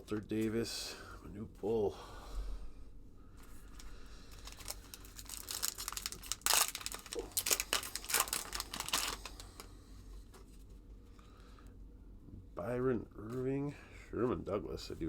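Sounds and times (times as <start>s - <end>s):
wrapper crinkling and tearing: 3.8s - 9.7s.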